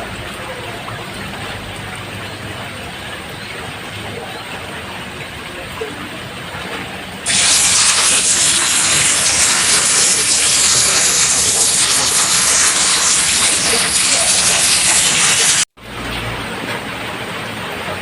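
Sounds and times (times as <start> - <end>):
rain on a roof: 6.4 - 18.0.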